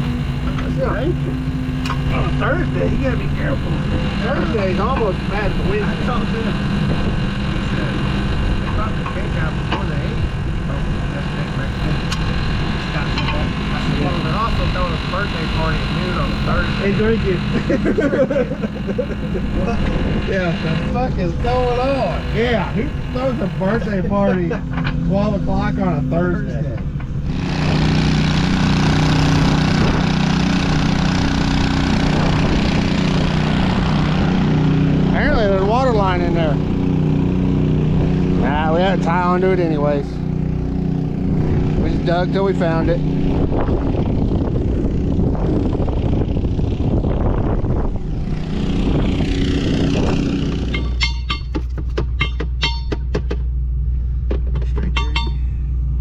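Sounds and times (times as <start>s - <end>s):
diesel engine running: 0.0s - 56.0s
ringing metallic clinks: 50.7s - 51.6s, 52.2s - 53.1s, 54.9s - 55.6s.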